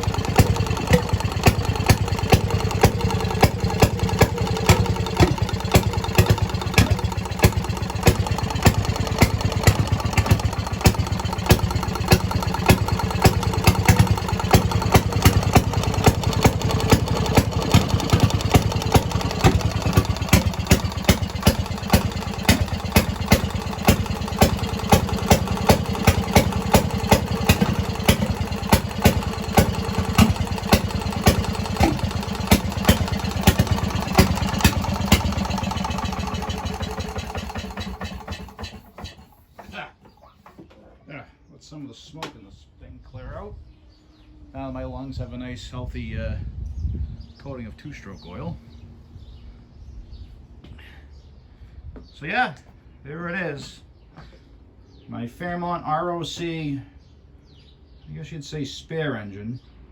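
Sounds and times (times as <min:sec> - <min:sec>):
two-stroke engine popping: 0:00.0 - 0:40.6.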